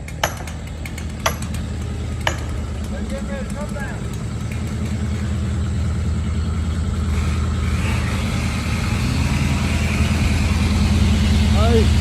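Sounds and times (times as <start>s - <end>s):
large engine idling: 0.0s - 12.0s.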